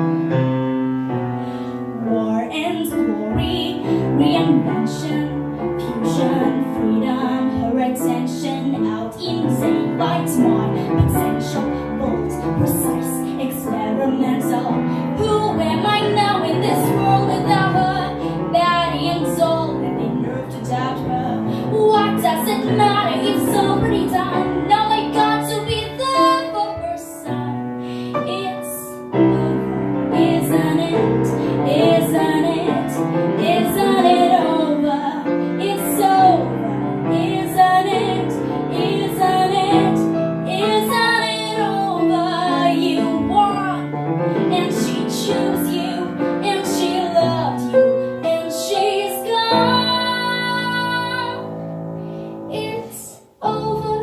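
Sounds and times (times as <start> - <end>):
piano accompaniment: 0.0 - 54.0
woman singing: 1.9 - 51.6, 52.5 - 54.0.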